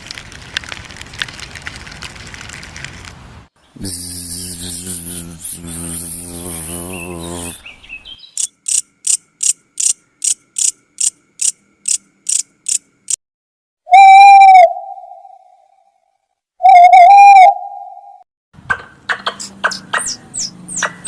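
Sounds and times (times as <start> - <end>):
high insect-like chirps: 8.2 - 13.2
whistle-like animal call: 13.9 - 15.7, 16.6 - 18.2.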